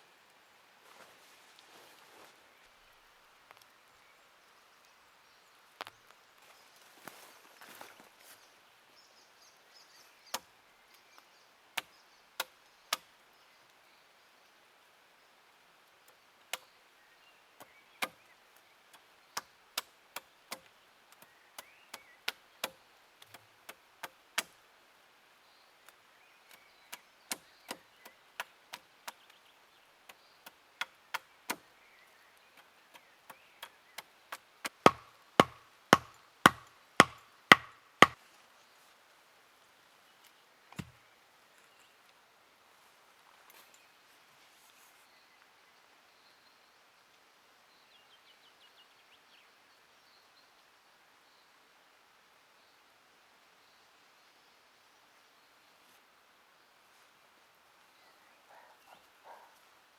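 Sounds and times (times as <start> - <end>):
axe chopping wood: 34.6 - 38.2.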